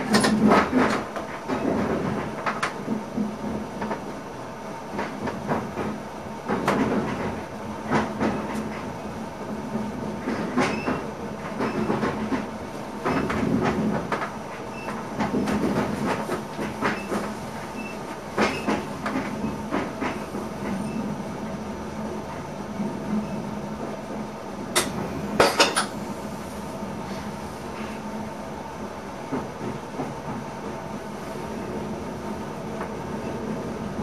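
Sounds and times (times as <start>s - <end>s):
train wheels clattering over rail joints: 0.0s - 4.1s, 4.9s - 9.0s, 10.1s - 21.0s, 24.7s - 26.0s.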